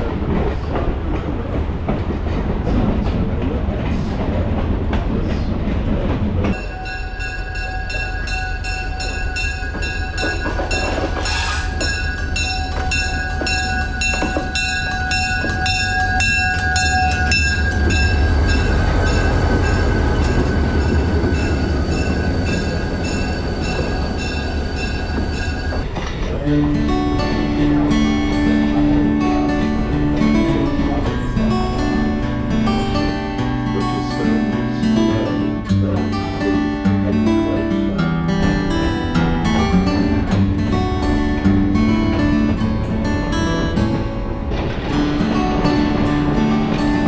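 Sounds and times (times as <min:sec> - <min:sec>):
wheels clicking over rail joints: 0:00.0 - 0:34.8
train rumbling on rails: 0:00.0 - 0:47.0
steady high-pitched tones: 0:06.5 - 0:44.2.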